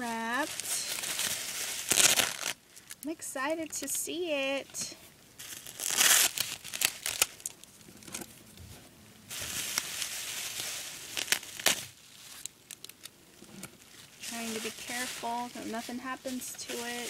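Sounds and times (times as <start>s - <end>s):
gift wrapping crinkling and tearing: 0.0s - 3.8s, 5.4s - 8.3s, 9.3s - 17.0s.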